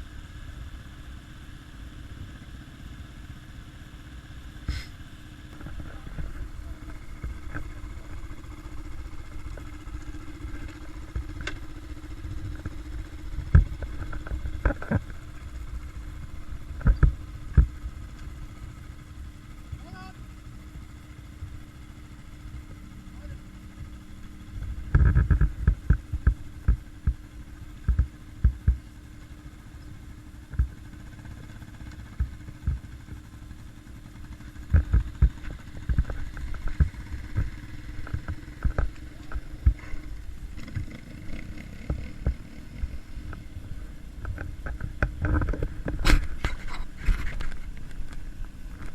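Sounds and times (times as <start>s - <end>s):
motorcycle engine idling: 0.0s - 48.9s
low thumps and knocks: 12.2s - 17.9s.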